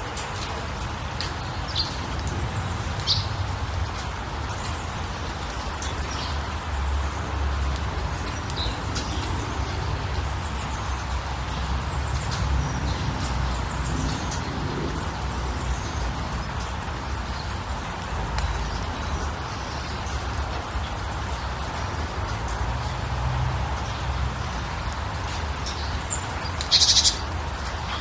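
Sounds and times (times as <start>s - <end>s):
small birds chirping: 23.8s - 28.0s.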